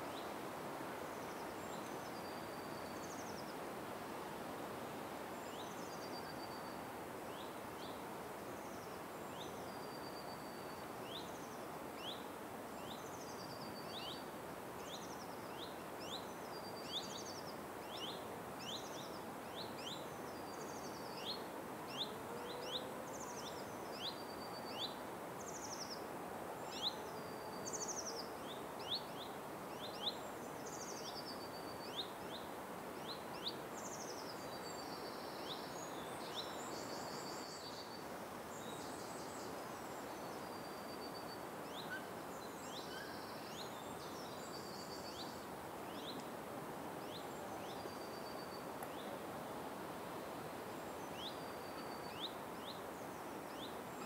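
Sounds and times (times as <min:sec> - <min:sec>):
background hiss: 0:00.0 - 0:54.0.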